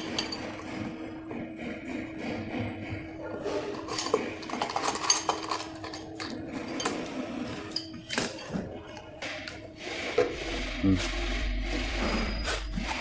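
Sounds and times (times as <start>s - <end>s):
metal tools clinking and knocking: 0.0s - 0.9s, 3.7s - 8.7s.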